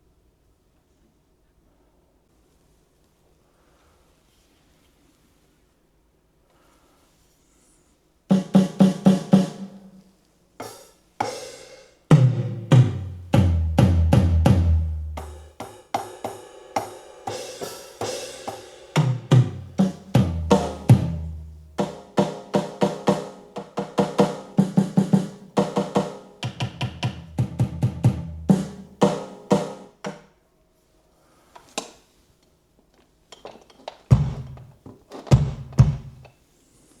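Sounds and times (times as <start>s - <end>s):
electronic drum kit playing: 8.3s - 9.9s, 10.6s - 30.0s, 34.1s - 36.3s.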